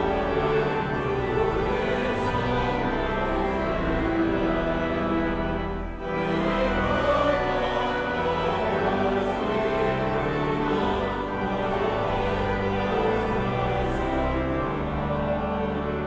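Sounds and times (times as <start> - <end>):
choir singing long held notes: 0.0 - 16.0.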